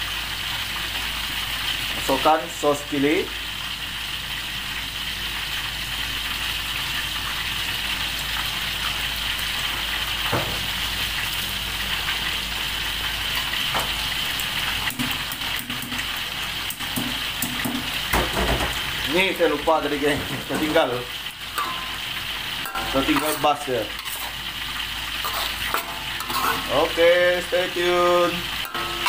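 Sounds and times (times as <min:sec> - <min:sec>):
paste sizzling in oil: 0:00.0 - 0:29.0
spatula tapping and scraping wok: 0:14.8 - 0:16.1, 0:16.7 - 0:18.4, 0:21.5 - 0:26.8, 0:28.5 - 0:29.0.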